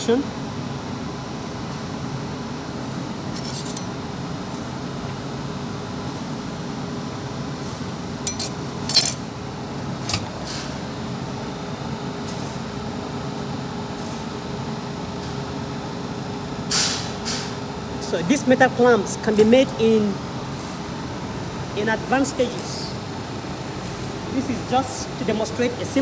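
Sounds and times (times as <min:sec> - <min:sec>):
steady low hum: 0:00.0 - 0:06.0, 0:07.9 - 0:13.8, 0:17.6 - 0:26.0
metal clinks and knocks: 0:03.3 - 0:04.0, 0:08.3 - 0:09.3, 0:10.0 - 0:10.8.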